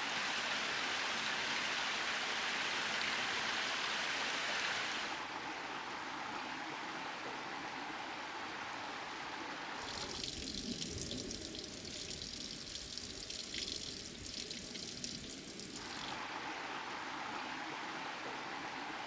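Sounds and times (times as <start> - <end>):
stream murmuring: 9.7 - 19.0
water splashing: 9.8 - 16.2.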